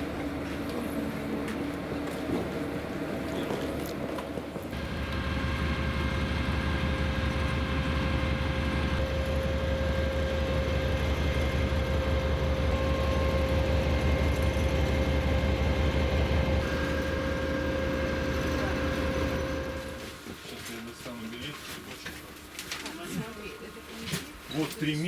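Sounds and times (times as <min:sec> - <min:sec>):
constant humming tone: 0:00.0 - 0:21.1
diesel engine idling: 0:04.7 - 0:20.1.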